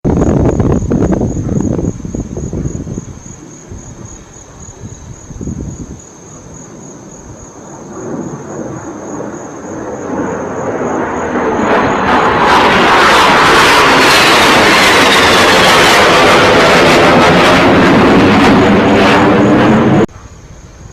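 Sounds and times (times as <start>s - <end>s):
low-flying aircraft passing overhead: 5.7s - 20.2s.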